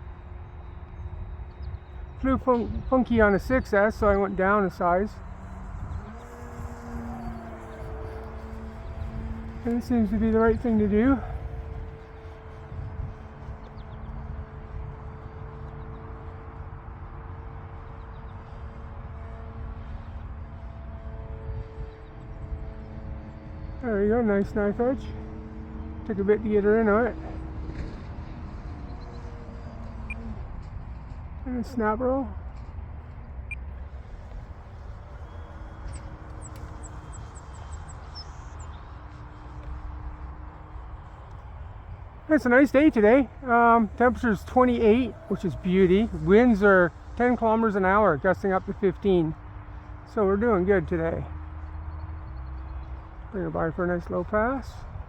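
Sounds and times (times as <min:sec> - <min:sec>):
model airplane motor humming: 0:00.0 - 0:55.0
wind rumbling on microphone: 0:00.0 - 0:55.0
bird chirping: 0:03.1 - 0:14.2, 0:33.4 - 0:39.8.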